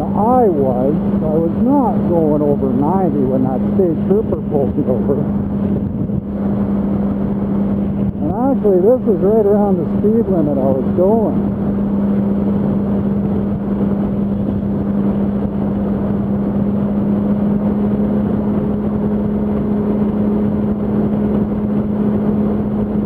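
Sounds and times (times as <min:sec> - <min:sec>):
constant rushing noise: 0:00.0 - 0:23.0
motorcycle engine drone: 0:00.0 - 0:23.0.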